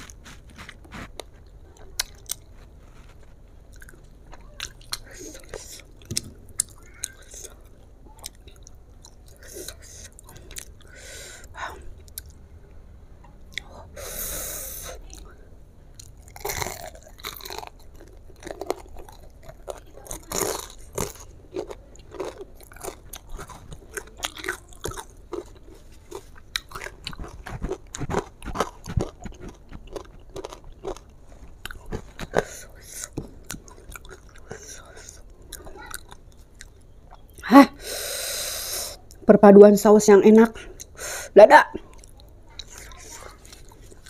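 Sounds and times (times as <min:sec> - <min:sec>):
fried chicken crunching: 0:00.0 - 0:10.8, 0:15.9 - 0:36.8.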